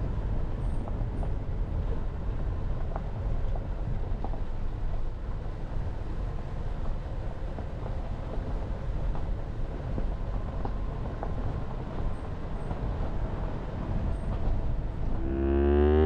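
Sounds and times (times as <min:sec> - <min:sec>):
car engine and road noise: 0:11.5 - 0:16.0
rising electronic tones: 0:15.2 - 0:16.0.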